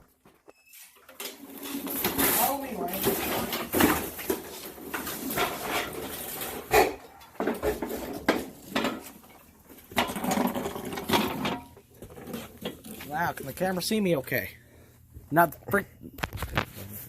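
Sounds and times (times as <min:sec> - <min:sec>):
knocks and clatter: 0:01.1 - 0:13.0.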